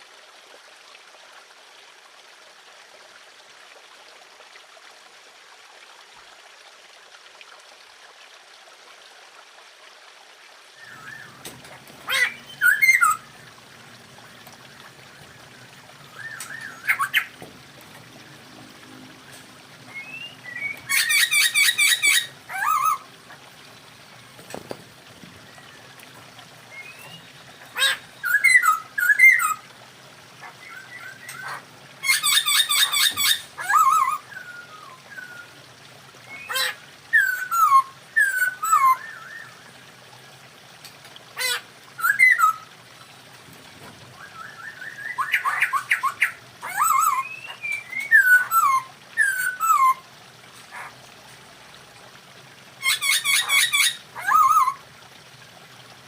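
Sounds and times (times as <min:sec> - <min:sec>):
birds whistling and chattering: 0:10.8 - 0:13.3, 0:15.2 - 0:17.5, 0:19.8 - 0:23.0, 0:26.7 - 0:29.6, 0:30.4 - 0:35.6, 0:36.3 - 0:39.6, 0:41.4 - 0:42.7, 0:44.2 - 0:50.0, 0:52.8 - 0:54.8.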